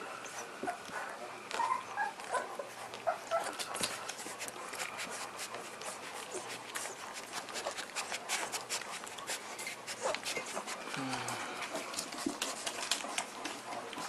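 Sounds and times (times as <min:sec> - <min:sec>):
puppies whimpering: 0:00.0 - 0:10.9
small clicks and rustles: 0:00.6 - 0:14.0.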